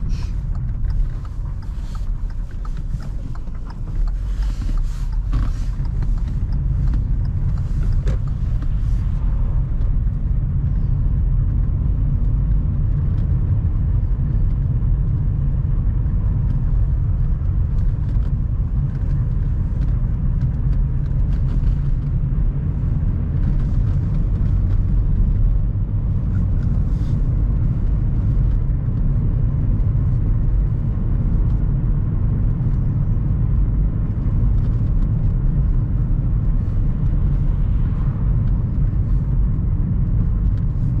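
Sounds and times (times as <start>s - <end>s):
faint clicks and rattles: 0.0s - 10.1s
car engine and road noise: 0.0s - 41.0s.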